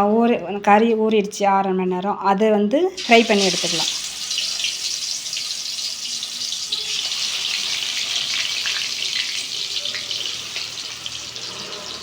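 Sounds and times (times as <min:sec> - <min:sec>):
chicken frying in hot oil: 0:03.0 - 0:12.0.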